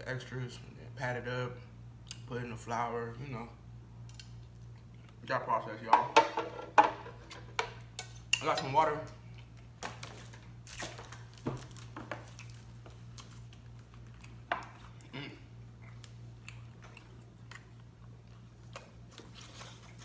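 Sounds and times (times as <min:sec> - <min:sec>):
steady low hum: 0:00.0 - 0:20.0
chewing and swallowing food: 0:04.4 - 0:05.2, 0:12.1 - 0:20.0.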